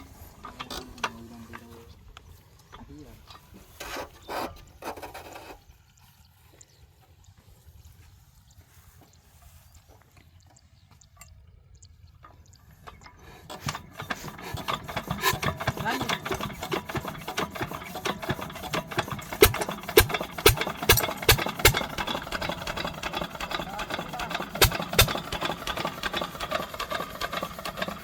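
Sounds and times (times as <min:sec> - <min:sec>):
diesel engine knocking: 0:12.8 - 0:28.0.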